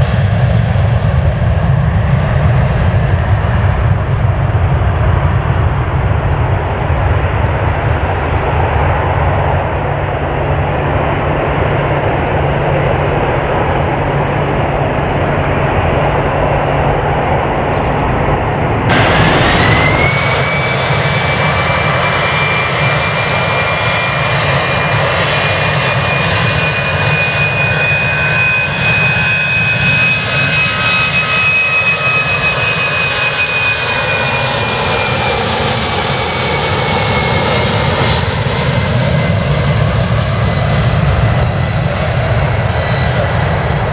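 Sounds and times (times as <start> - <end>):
jet engine high whine: 0.0 - 43.9
jet engines roaring: 0.0 - 43.9.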